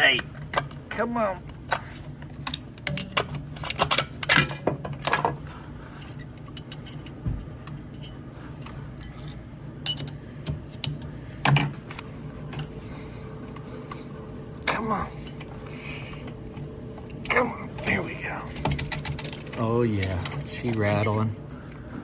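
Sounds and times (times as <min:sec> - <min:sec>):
steady low hum: 0:00.0 - 0:22.0
metal tools clinking: 0:06.0 - 0:10.2, 0:17.0 - 0:21.3.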